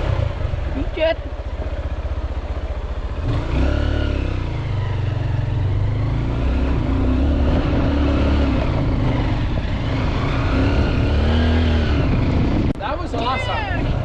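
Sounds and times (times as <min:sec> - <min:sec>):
dirt bike engine revving: 0:03.2 - 0:12.7.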